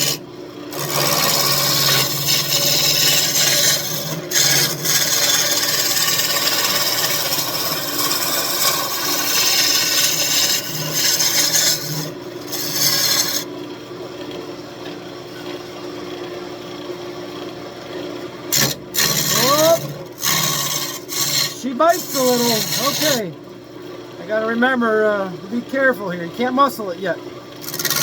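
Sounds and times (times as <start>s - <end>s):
lathe tool scraping wood: 0.0s - 13.5s, 18.5s - 23.4s, 24.2s - 28.0s
lathe running hum: 0.0s - 28.0s.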